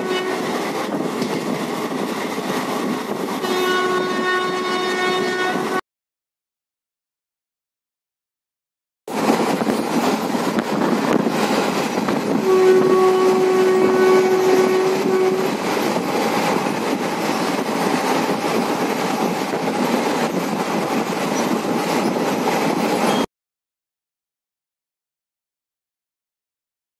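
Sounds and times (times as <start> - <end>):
locomotive horn: 0.0 - 0.6, 3.4 - 5.8, 12.3 - 15.6
train wheels rumbling on rails: 0.0 - 5.8, 9.1 - 23.3
faint rail clacking: 0.4 - 3.2.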